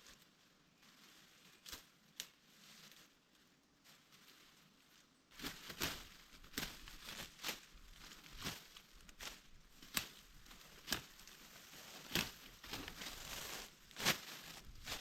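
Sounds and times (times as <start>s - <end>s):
leaves and twigs rustling: 0.0s - 15.0s
twigs snapping: 5.3s - 15.0s.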